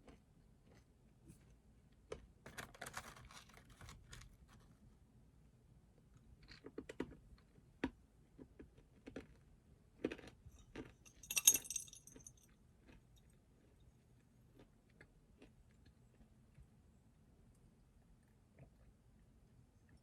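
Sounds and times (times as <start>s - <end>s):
metallic jingle: 11.0s - 12.4s.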